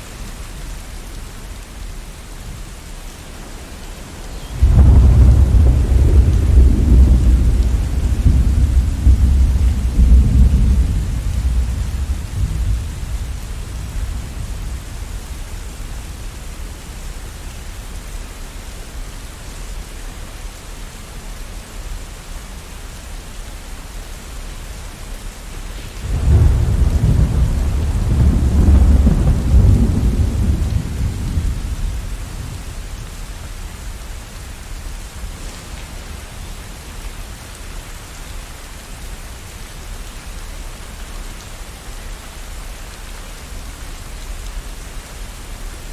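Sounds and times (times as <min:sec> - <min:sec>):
steady rain: 0:00.0 - 0:45.9
rolling thunder: 0:03.6 - 0:16.5, 0:25.8 - 0:33.4.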